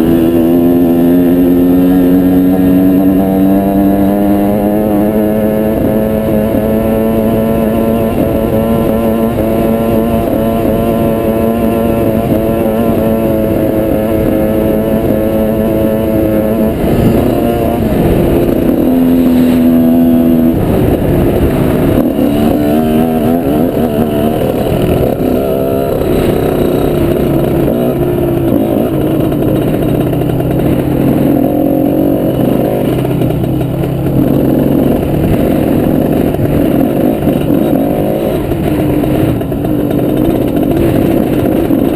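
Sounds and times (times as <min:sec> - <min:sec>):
motorbike engine revving: 0:00.0 - 0:41.9.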